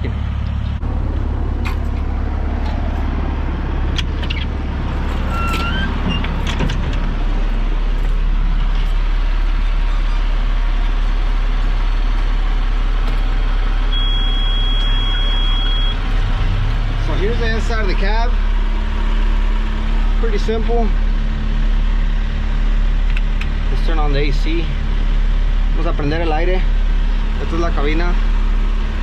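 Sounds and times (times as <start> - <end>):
bulldozer diesel engine running: 0.0 - 29.0
steady high beep: 13.9 - 16.0.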